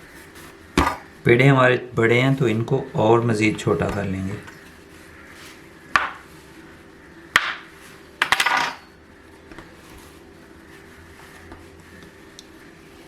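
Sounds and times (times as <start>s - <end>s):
dishes clinking: 8.2s - 9.0s.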